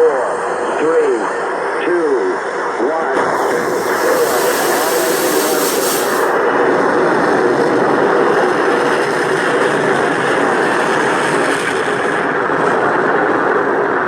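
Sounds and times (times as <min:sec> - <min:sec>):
rocket engines roaring: 0:03.2 - 0:06.4.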